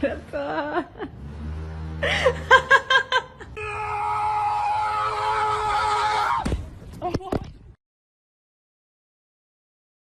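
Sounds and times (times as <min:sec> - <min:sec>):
long high scream: 0:03.6 - 0:06.5.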